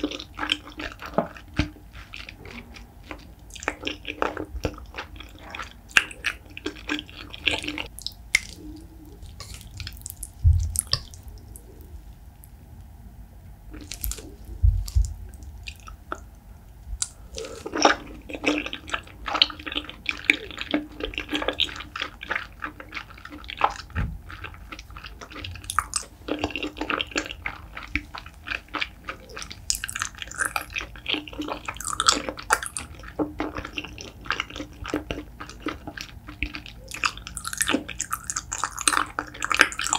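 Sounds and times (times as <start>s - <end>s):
wet chewing and mouth smacking: 0.0s - 12.6s, 13.7s - 16.4s, 17.0s - 39.9s
low thumps: 10.4s - 10.8s.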